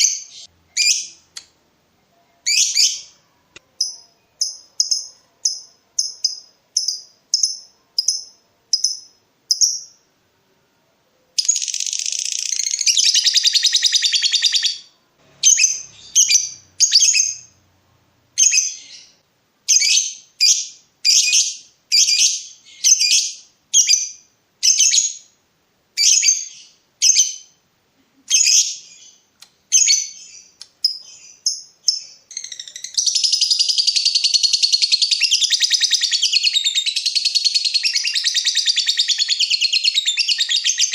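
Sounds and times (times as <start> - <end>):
lovebird chirping: 0.0 - 10.1, 11.2 - 17.6, 18.3 - 25.4, 26.0 - 27.6, 28.2 - 40.9
lovebird chattering trill: 29.8 - 40.9.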